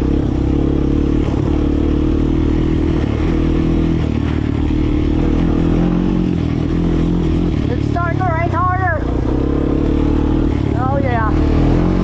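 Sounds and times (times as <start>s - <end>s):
atv engine running under load: 0.0s - 12.0s
knocks and rattles: 1.1s - 7.8s.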